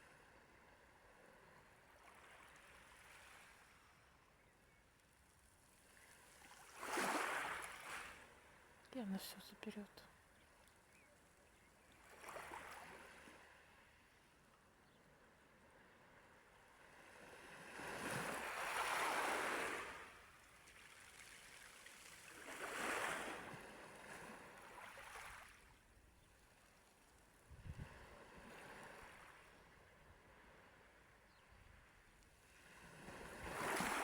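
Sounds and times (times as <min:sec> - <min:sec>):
small waves washing in: 0:05.9 - 0:08.8, 0:12.0 - 0:13.9, 0:16.9 - 0:25.8, 0:27.1 - 0:31.0, 0:32.4 - 0:34.0.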